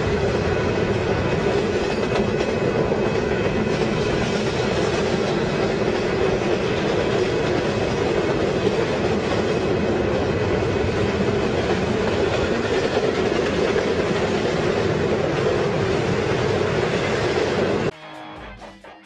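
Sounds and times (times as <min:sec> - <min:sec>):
freight train rumbling over rails: 0:00.0 - 0:17.9.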